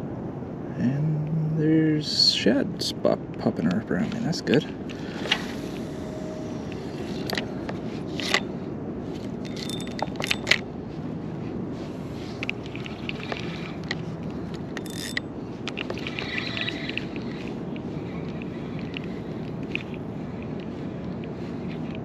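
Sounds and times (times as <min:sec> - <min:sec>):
wind noise: 0:02.2 - 0:22.0
gear clicking and knocking: 0:09.4 - 0:10.6, 0:12.4 - 0:22.0.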